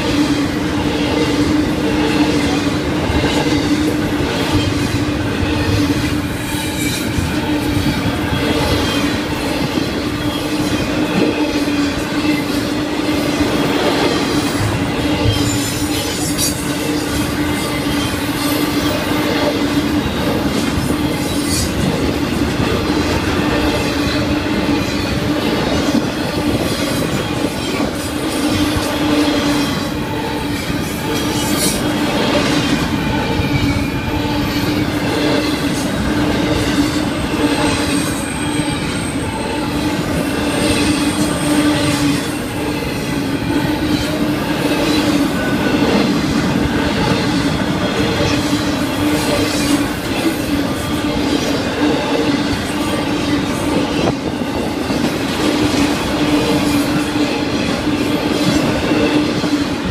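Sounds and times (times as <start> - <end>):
train wheels rumbling and rattling: 0.0 - 59.9
high wheel squeal: 3.4 - 22.1, 23.2 - 45.8.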